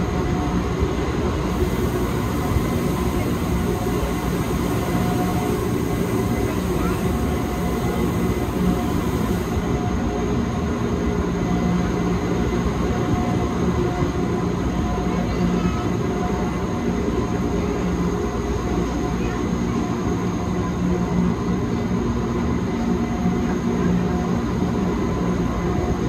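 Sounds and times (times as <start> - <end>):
train wheels rumbling: 1.4 - 9.8
faint whining tones: 1.5 - 9.7.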